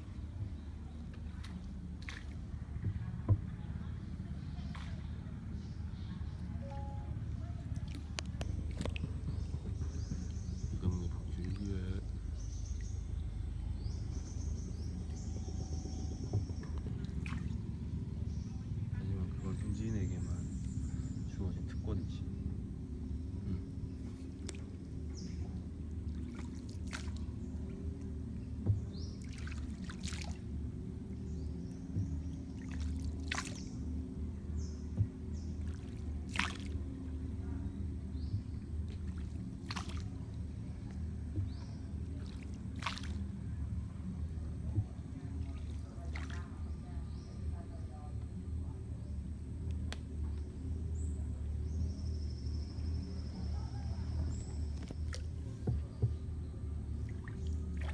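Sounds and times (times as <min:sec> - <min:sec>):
paddle splashing water: 0:00.0 - 0:05.8, 0:06.4 - 0:13.1, 0:14.0 - 0:22.5, 0:23.3 - 0:46.8, 0:53.8 - 0:56.2, 0:56.8 - 0:57.9
low hum: 0:00.0 - 0:57.9
steady low rumble: 0:00.0 - 0:57.9
high pulsing wildlife trill: 0:08.5 - 0:47.7.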